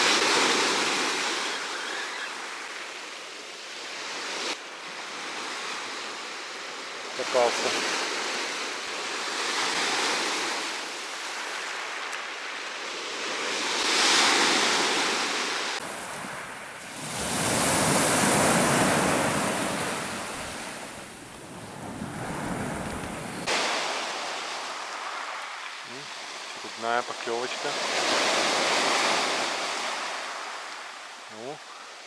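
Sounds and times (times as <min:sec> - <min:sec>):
surf breaking on beach: 0:00.0 - 0:32.0
wind buffeting microphone: 0:16.9 - 0:23.6.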